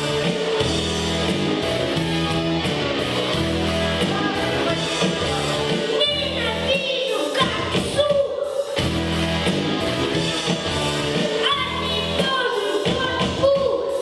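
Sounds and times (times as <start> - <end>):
pop backing track: 0.0 - 14.0
child singing: 4.0 - 8.8, 11.2 - 14.0.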